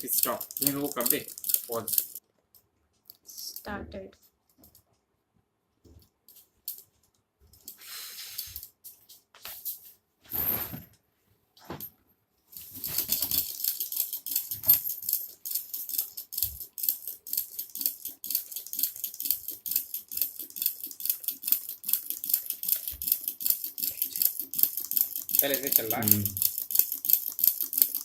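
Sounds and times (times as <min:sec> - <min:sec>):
small engine rattling: 0:00.0 - 0:02.2, 0:12.6 - 0:28.0.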